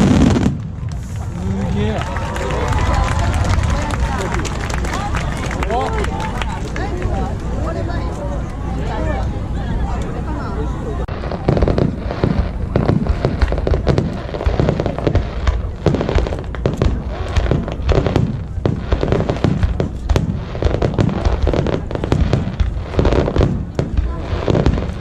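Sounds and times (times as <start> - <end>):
fireworks booming: 0.0 - 6.3, 11.1 - 25.0
fireworks crackling bangs: 0.0 - 7.7, 11.0 - 25.0.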